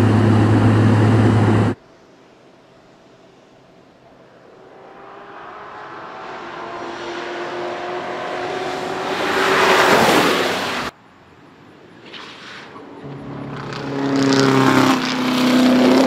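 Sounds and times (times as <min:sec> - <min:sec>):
race car engine passing: 0:04.2 - 0:10.9, 0:12.1 - 0:16.0.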